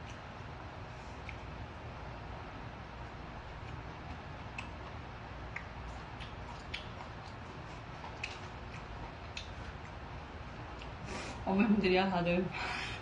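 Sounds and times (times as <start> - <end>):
low steady hum: 0.0 - 13.0
wet mouth smacks: 5.5 - 7.4, 8.0 - 9.6.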